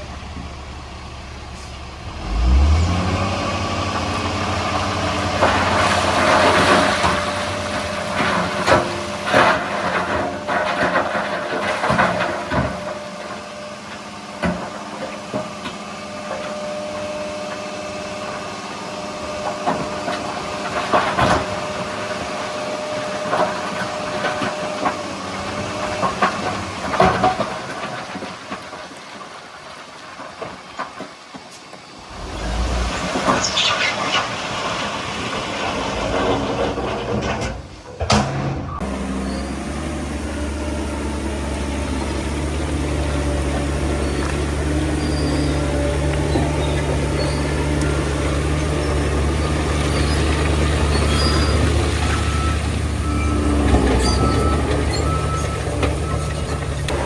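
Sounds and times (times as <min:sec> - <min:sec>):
diesel engine revving: 0:00.0 - 0:28.4, 0:32.0 - 0:57.0
metallic clanks and knocks: 0:36.3 - 0:38.9.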